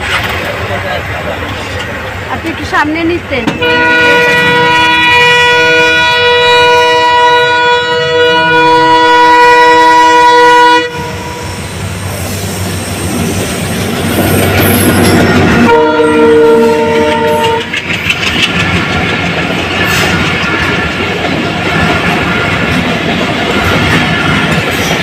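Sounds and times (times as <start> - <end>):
train rumbling over rails: 0.0 - 25.0
train horn blast: 3.5 - 11.7, 15.5 - 17.8.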